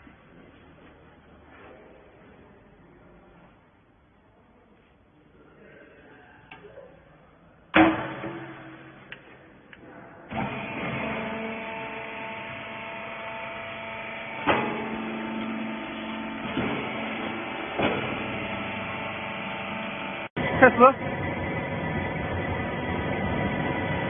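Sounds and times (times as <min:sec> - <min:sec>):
loud metallic clang: 0:07.8 - 0:09.1
baling machine humming: 0:10.3 - 0:24.0.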